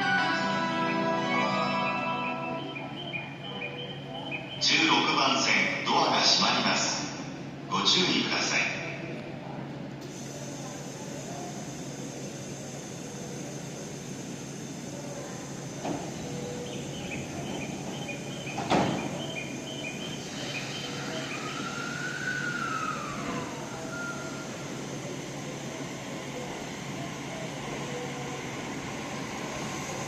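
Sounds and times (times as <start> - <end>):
station noise: 0.0 - 9.2, 15.8 - 30.0
train doors thudding shut: 15.8 - 20.2.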